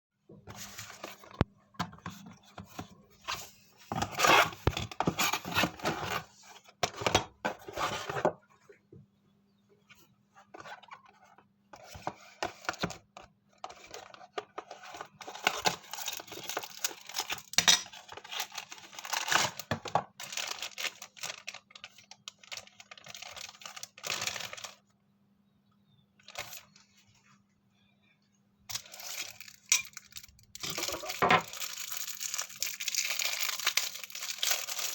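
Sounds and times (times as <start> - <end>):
plastic crinkling: 15.0 - 24.8, 28.7 - 34.9
packaging tearing: 15.2 - 24.8, 28.7 - 34.9.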